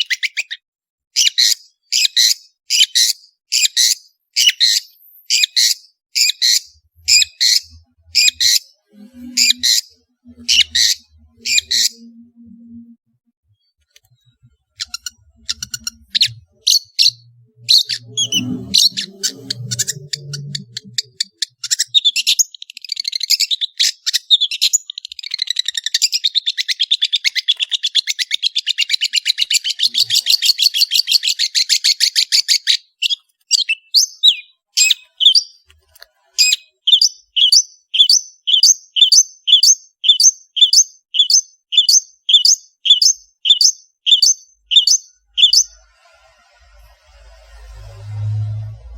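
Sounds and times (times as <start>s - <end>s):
shrike singing: 7.0s - 13.0s.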